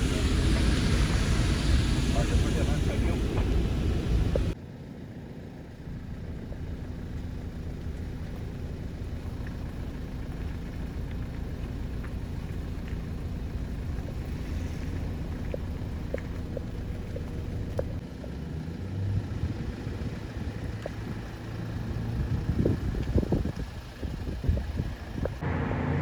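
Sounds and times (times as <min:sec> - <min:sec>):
low engine rumble: 0:00.0 - 0:26.0.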